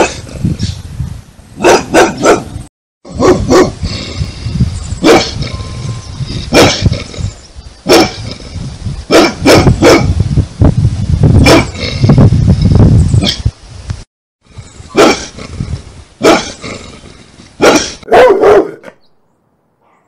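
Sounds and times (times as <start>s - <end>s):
large dog barking deeply: 1.6s - 4.0s, 5.0s - 5.4s, 6.5s - 7.0s, 7.8s - 8.3s, 9.1s - 10.2s, 11.4s - 11.9s, 14.9s - 15.6s, 16.2s - 16.7s, 17.6s - 19.0s.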